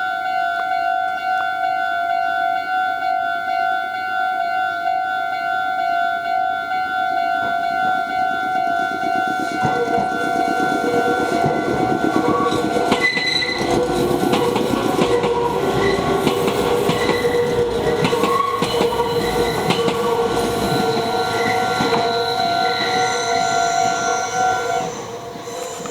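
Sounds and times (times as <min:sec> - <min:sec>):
level crossing warning bell: 0:00.0 - 0:25.9
train wheels clacking over rail joints: 0:06.9 - 0:25.9.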